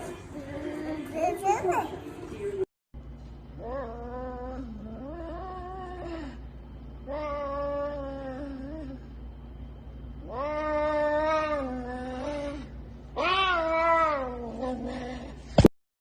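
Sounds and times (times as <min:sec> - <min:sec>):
cat yowling: 0:13.2 - 0:14.9.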